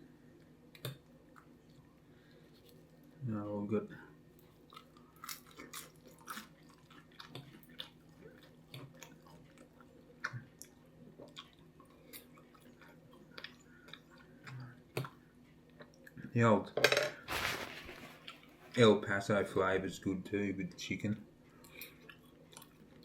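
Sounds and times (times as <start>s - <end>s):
faint steady hum: 0.0s - 23.0s
person chewing: 4.4s - 16.2s, 21.6s - 23.0s.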